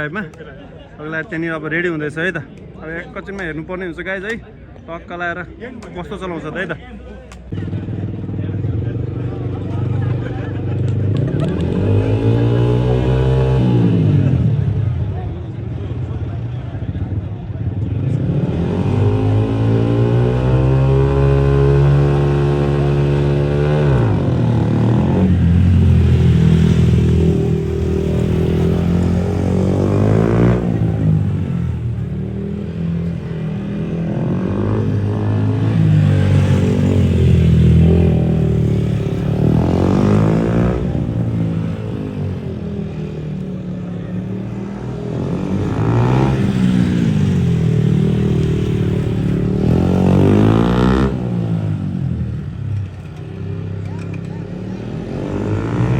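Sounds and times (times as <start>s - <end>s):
motorcycle engines revving past: 7.3s - 55.9s.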